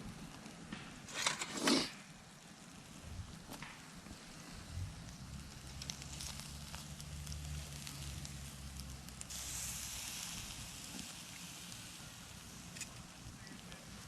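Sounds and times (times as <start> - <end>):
wood fire crackling: 0.0 - 14.0
hiss: 4.0 - 14.0.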